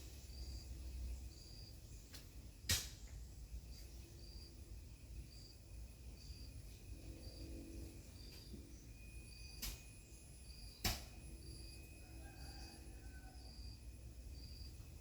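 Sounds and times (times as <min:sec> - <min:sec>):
sharp click: 0:10.8 - 0:11.2.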